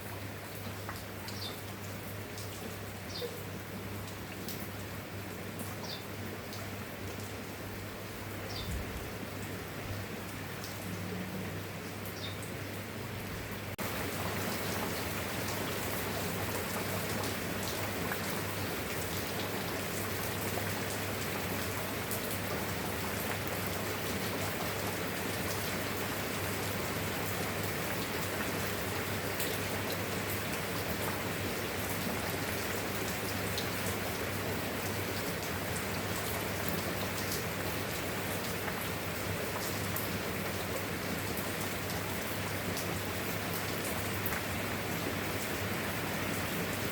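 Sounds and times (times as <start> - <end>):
steady rain hiss: 0.0 - 46.9.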